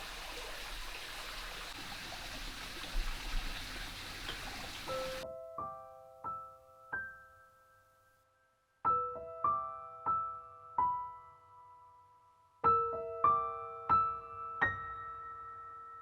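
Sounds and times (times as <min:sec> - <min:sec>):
gentle piano melody: 0:04.1 - 0:16.0.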